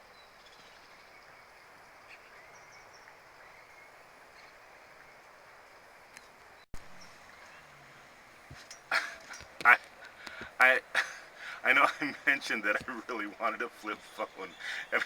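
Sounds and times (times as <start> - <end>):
faint outdoor hiss: 0.0 - 15.0
small birds chirping: 0.0 - 15.0.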